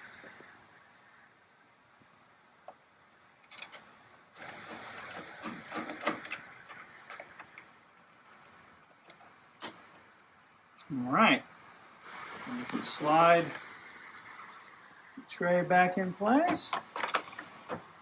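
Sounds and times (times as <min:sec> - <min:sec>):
screws scraping metal: 0:03.5 - 0:03.8, 0:04.4 - 0:07.4.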